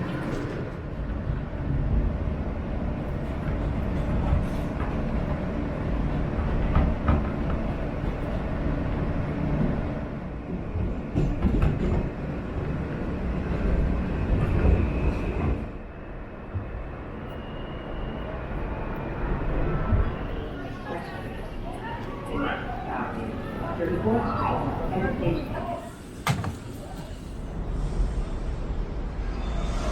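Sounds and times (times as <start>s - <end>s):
subway train rumbling on tracks: 0.0s - 29.9s.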